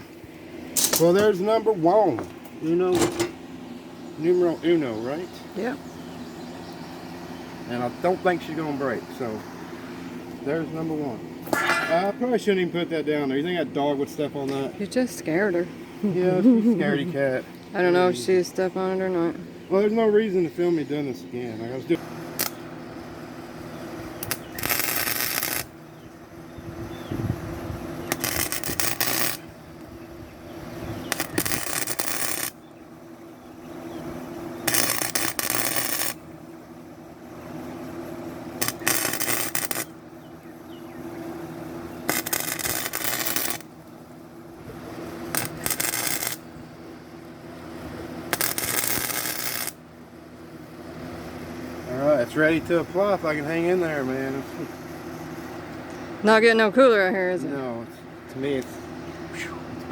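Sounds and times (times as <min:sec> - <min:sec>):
welder arcs crackling: 0:00.0 - 0:03.3, 0:21.8 - 0:22.7, 0:23.3 - 0:26.5, 0:27.3 - 0:30.0, 0:30.9 - 0:32.7, 0:34.5 - 0:36.7, 0:38.4 - 0:40.1, 0:41.9 - 0:49.9
welder humming: 0:00.0 - 0:59.9.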